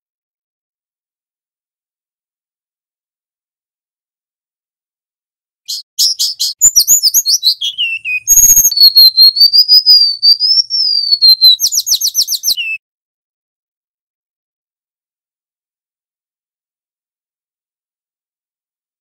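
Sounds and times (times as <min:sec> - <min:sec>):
bird singing: 0:05.7 - 0:12.8.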